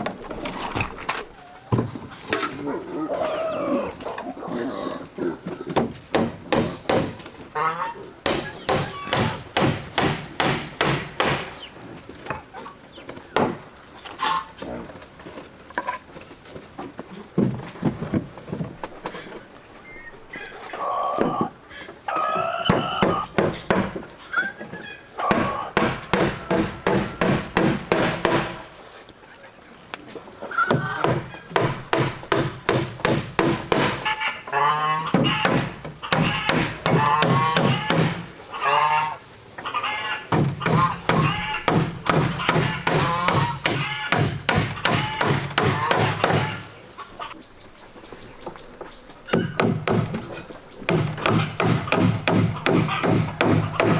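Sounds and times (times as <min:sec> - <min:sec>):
poultry honking cries: 0:07.5 - 0:08.1, 0:14.2 - 0:14.6, 0:34.0 - 0:41.7, 0:42.3 - 0:44.2, 0:44.8 - 0:47.4.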